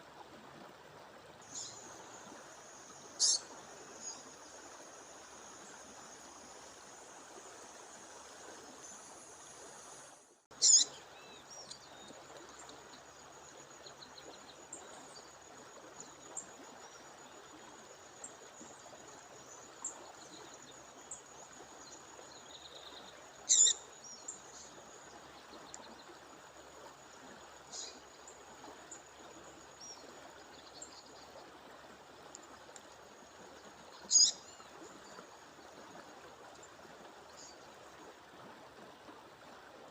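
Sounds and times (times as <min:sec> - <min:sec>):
faint bird chirps: 0:03.0 - 0:04.3, 0:10.6 - 0:12.7, 0:22.4 - 0:24.7, 0:34.0 - 0:35.2
bird high calls: 0:03.2 - 0:03.5, 0:10.6 - 0:10.9, 0:23.5 - 0:23.8, 0:34.1 - 0:34.4.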